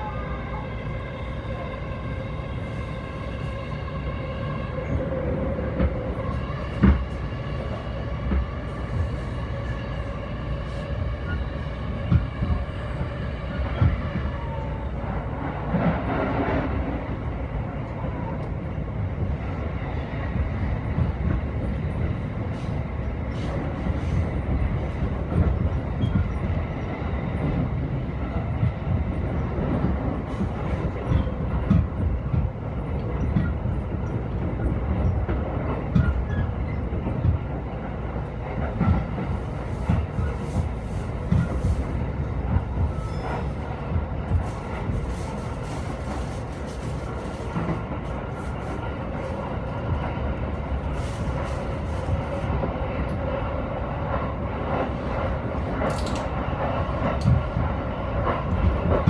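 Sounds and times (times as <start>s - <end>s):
wheels rumbling on rail: 0.0s - 59.0s
passing train hiss: 21.7s - 25.0s, 38.2s - 58.6s.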